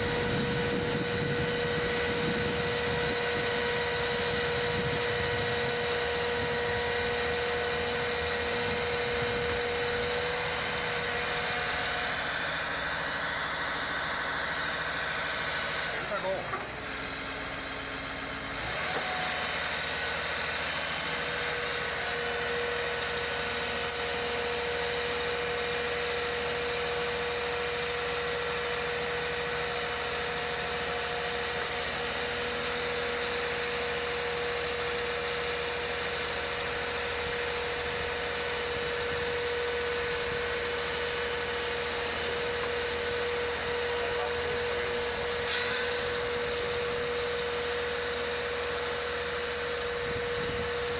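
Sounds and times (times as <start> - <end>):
machine whining: 0.0 - 50.9.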